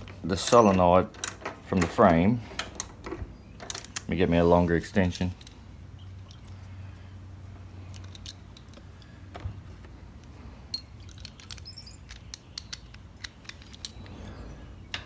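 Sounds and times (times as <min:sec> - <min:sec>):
hand tools clicking and clinking: 0:00.0 - 0:03.0, 0:07.9 - 0:09.1, 0:10.7 - 0:14.3
steady low hum: 0:00.0 - 0:15.0.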